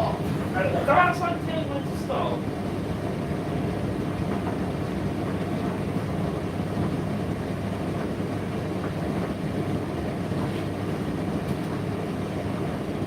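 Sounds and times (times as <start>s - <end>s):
motor and fan humming: 0.0s - 13.0s
tumble dryer drum rumbling: 0.0s - 13.0s.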